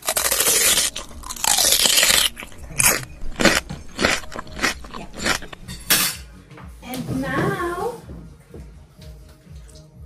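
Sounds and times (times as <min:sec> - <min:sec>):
crunchy chewing: 0:00.0 - 0:05.9.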